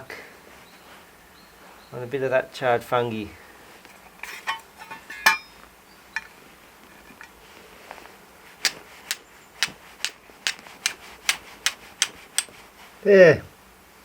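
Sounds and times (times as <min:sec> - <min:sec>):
flint striking steel: 0:08.6 - 0:12.6.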